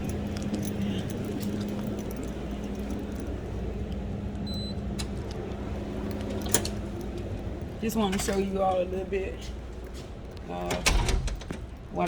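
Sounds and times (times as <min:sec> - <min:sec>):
light clicks and jingles: 0:00.0 - 0:04.4
mechanical hum: 0:00.0 - 0:12.0.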